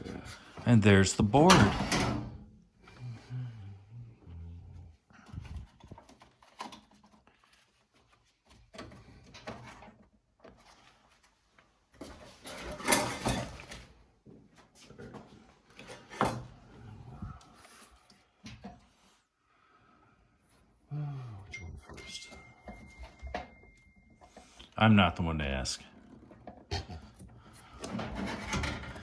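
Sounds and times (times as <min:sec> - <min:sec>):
plastic and metal parts rattling: 0:27.8 - 0:29.0.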